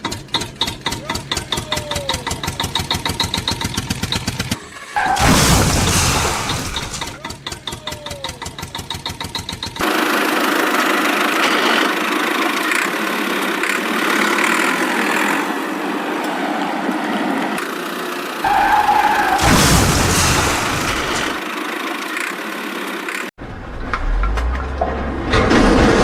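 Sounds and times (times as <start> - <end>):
engine chugging: 0.0 - 5.2, 6.3 - 15.5.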